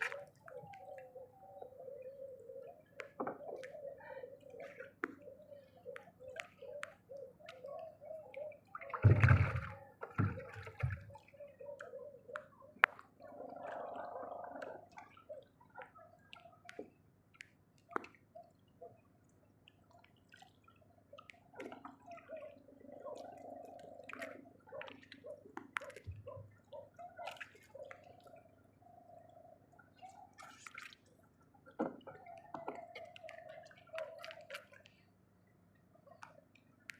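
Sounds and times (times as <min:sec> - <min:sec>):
water sloshing and gurgling: 0:00.0 - 0:36.9
water splash: 0:09.0 - 0:11.0.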